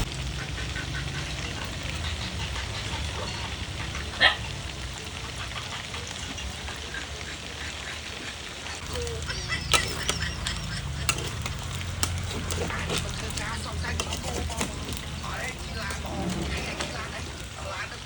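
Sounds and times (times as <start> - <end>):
chicken sizzling in a pan: 0.0 - 18.0
utensil clicking against pan: 8.8 - 17.5.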